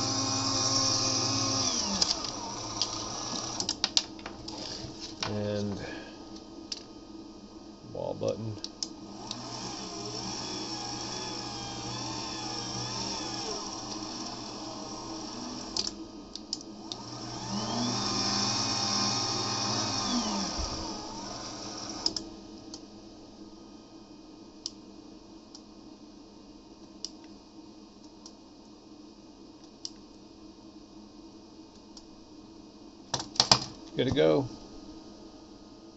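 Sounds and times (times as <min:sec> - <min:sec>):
small electric motors whirring: 0:00.0 - 0:03.8, 0:09.1 - 0:16.0, 0:16.8 - 0:22.3
faint hum: 0:00.0 - 0:35.9.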